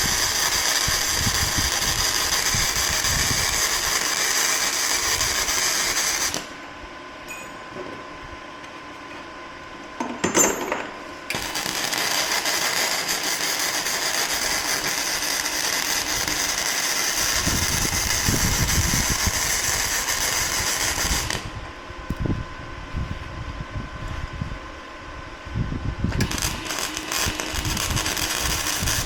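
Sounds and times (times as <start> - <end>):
machine running with steady hiss: 0.0 - 7.5, 10.7 - 22.3, 26.2 - 29.0.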